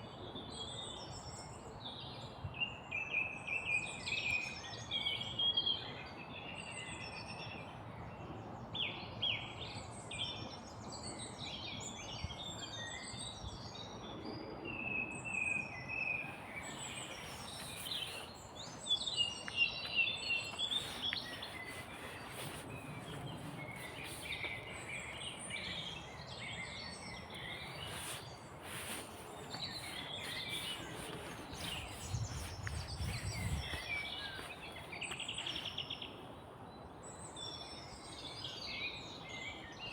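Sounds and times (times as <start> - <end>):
small birds chirping and trilling: 15.7 - 36.3.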